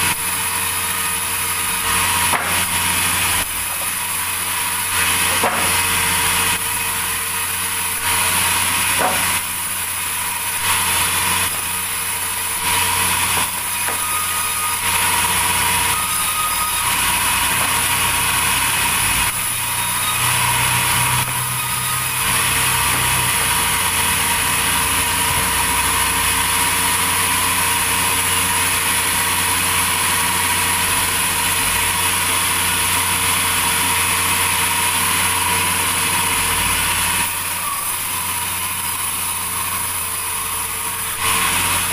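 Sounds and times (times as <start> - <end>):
sawmill machinery running: 0.0 - 41.9.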